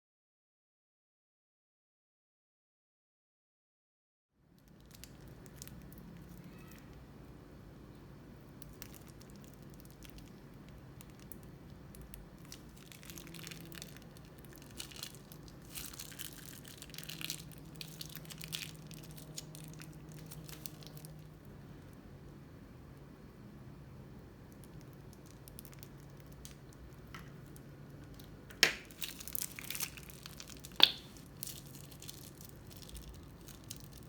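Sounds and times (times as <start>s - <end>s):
crunchy slime squeezed by hand: 12.4s - 21.2s, 28.6s - 34.0s.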